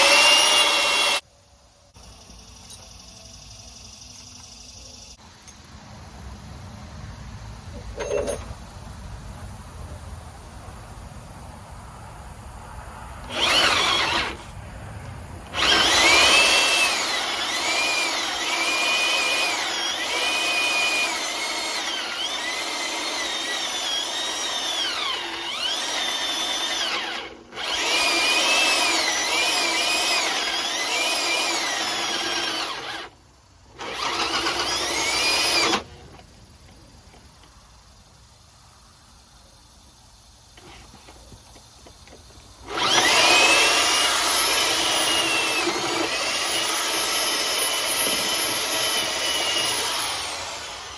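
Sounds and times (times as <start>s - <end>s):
power drill motor whine: 0.0s - 1.2s, 13.3s - 14.5s, 15.5s - 36.0s, 42.6s - 50.9s.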